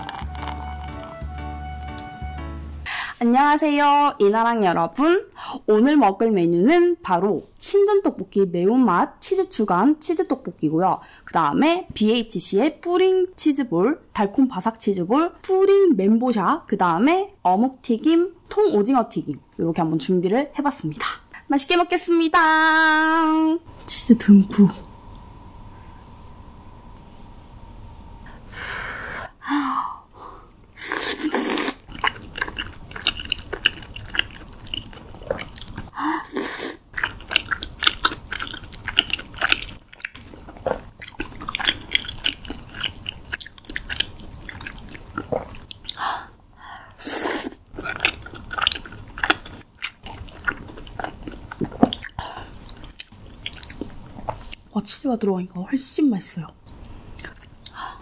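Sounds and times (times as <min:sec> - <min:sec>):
wet chewing sounds: 0:00.0 - 0:01.2, 0:30.4 - 0:35.9, 0:36.9 - 0:46.0, 0:46.9 - 0:54.7, 0:56.6 - 0:57.9.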